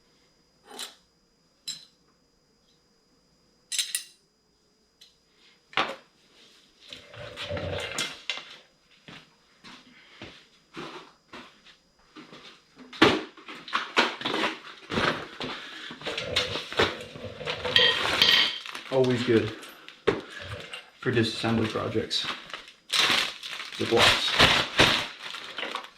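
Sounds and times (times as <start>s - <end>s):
metal tools and parts clinking: 1.7s - 1.9s, 3.7s - 4.2s, 17.4s - 19.8s.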